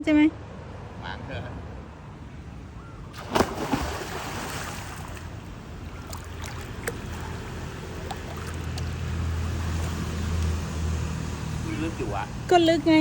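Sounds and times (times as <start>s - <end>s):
sloshing water: 3.1s - 11.2s
pool water splashing: 3.1s - 11.6s.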